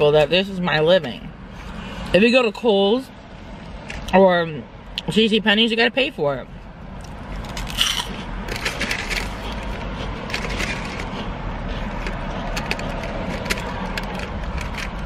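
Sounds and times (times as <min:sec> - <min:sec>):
crunchy snack chewing: 0:07.0 - 0:14.6.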